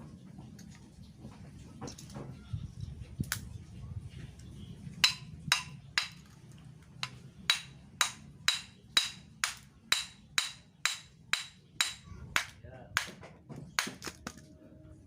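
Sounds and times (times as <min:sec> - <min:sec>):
hammer on metal: 0:05.0 - 0:06.2, 0:07.0 - 0:14.0.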